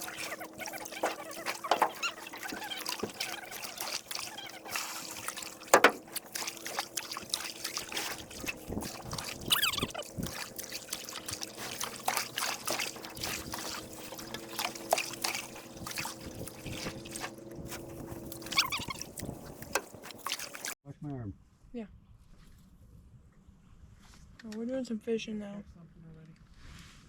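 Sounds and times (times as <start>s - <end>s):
canoe paddles dipping and dripping: 0.0s - 20.8s
knocks and taps on canoe: 5.6s - 6.2s, 14.3s - 20.4s.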